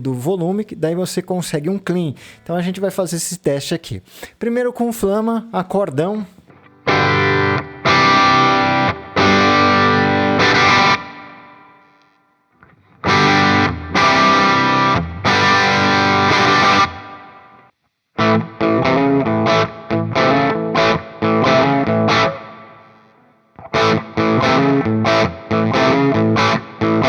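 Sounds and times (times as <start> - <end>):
electric guitar strumming chords: 6.5 - 12.0, 12.6 - 17.6, 18.2 - 27.0.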